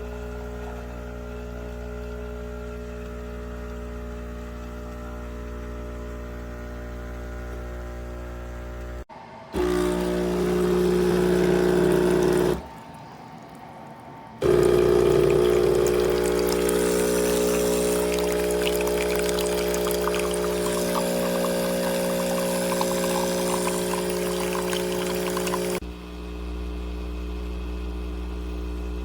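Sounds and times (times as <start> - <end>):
espresso machine pump humming: 9.6 - 13.4, 14.4 - 25.8
liquid pouring: 11.4 - 25.8.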